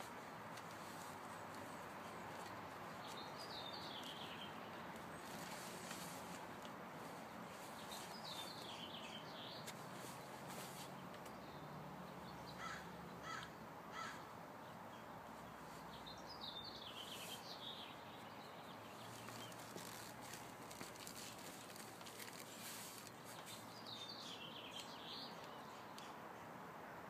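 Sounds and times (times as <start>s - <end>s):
birds calling: 0.0s - 6.2s, 7.1s - 11.6s, 12.3s - 14.4s
faint outdoor background: 0.0s - 27.0s.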